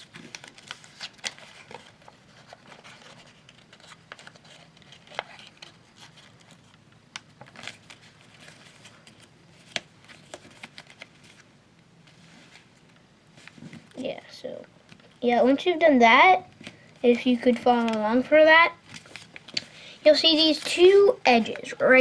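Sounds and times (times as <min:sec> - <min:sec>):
paper being folded and creased: 0:00.0 - 0:06.8, 0:07.4 - 0:11.5, 0:16.6 - 0:22.0.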